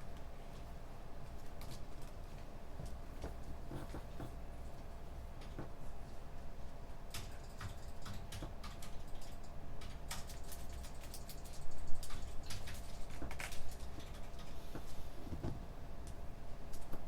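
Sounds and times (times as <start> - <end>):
keyboard typing: 7.1 - 14.5.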